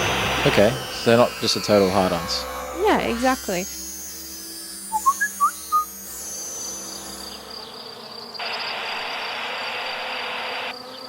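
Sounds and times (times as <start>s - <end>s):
steady insect drone: 3.5s - 11.0s.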